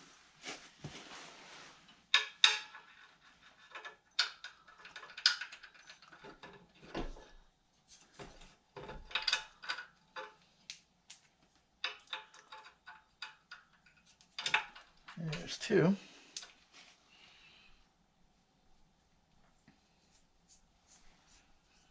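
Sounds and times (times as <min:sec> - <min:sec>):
metal clinks and knocks: 0:02.1 - 0:07.3, 0:08.2 - 0:10.4, 0:11.8 - 0:15.7.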